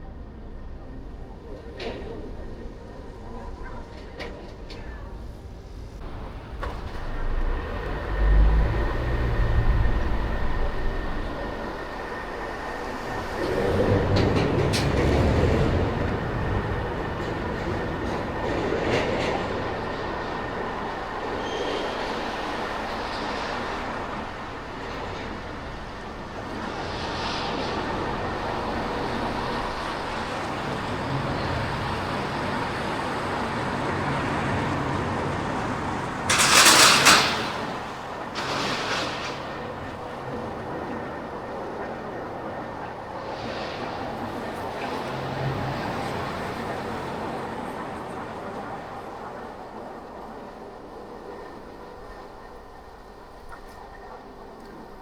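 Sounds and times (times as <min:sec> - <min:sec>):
car driving through city traffic: 0:06.0 - 0:11.9.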